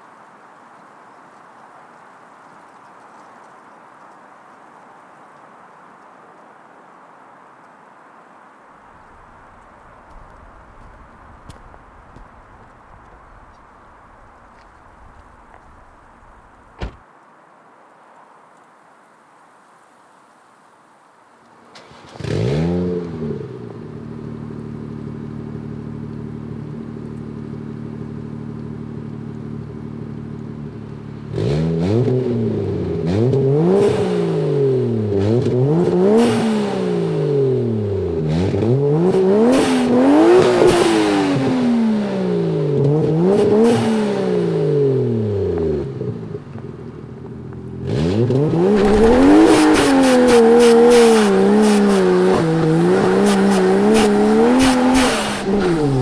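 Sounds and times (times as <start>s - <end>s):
car engine starting and revving: 8.9s - 17.0s, 21.6s - 56.0s.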